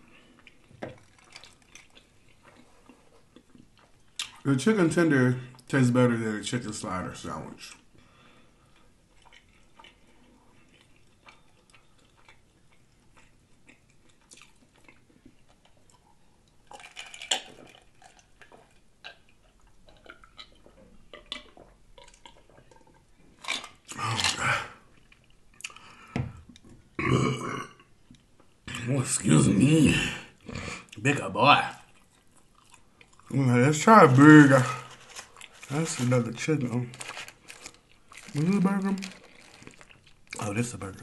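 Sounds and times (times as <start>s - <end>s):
chewing and mouth smacking: 0.3s - 4.5s, 8.7s - 26.7s, 31.6s - 33.4s, 34.9s - 36.0s
gulping a drink: 27.0s - 27.9s
loud burp: 27.0s - 27.9s.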